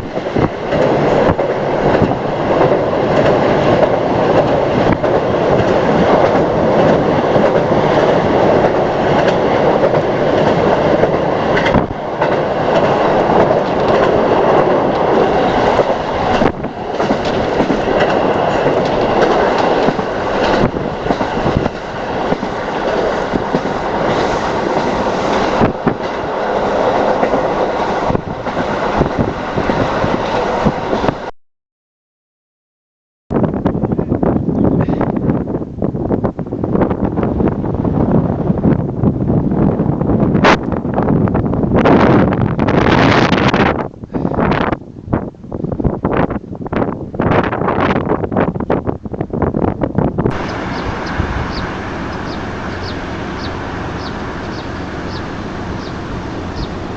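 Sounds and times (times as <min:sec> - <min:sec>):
train wheels clacking on rails: 0:00.0 - 0:31.2, 0:50.3 - 0:56.9.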